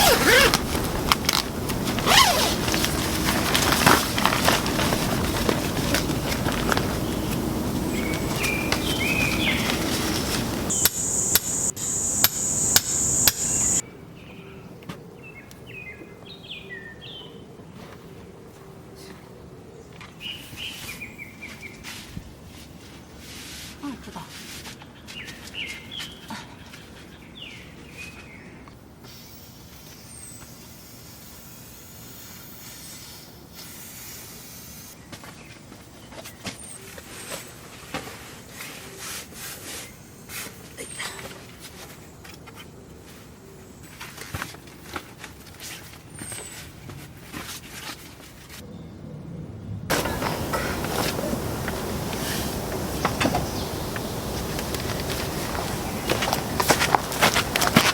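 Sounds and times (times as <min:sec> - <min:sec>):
birds chirping: 0:00.0 - 0:13.8, 0:49.9 - 0:57.9
insects buzzing: 0:00.0 - 0:13.8, 0:49.9 - 0:57.9
steady high hiss: 0:00.0 - 0:13.8, 0:49.9 - 0:57.9.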